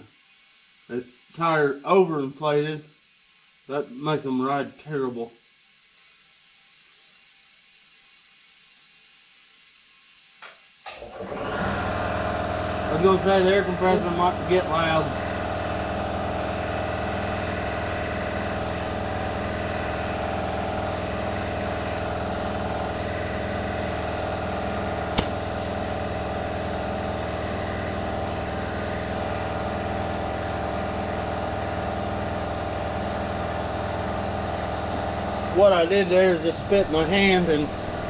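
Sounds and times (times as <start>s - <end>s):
air compressor running: 0.0s - 38.0s
sharp click: 25.2s - 25.5s.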